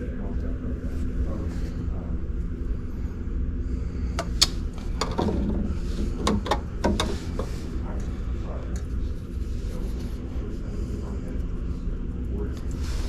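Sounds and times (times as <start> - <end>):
steady low hum: 0.0 - 13.0
sharp clicks and knocks: 4.2 - 7.5.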